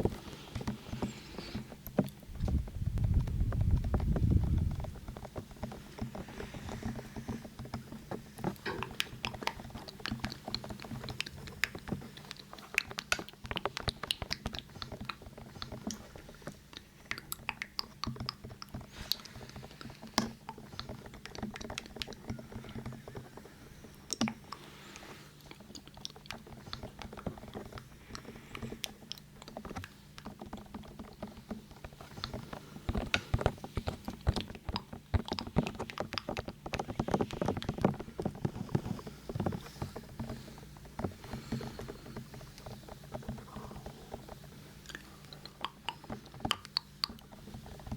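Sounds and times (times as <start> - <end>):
light tapping on microphone: 0.0 - 24.7.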